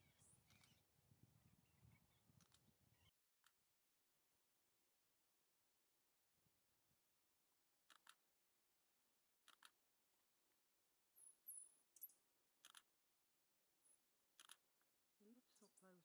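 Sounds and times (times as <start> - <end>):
small birds chirping: 0.0 - 3.1, 11.2 - 12.3, 15.2 - 16.0.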